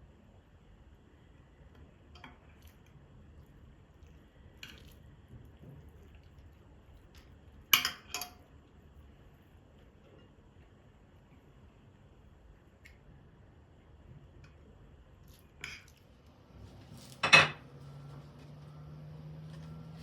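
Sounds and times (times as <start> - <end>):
kitchen utensils and dishes clinking: 16.8 - 17.8.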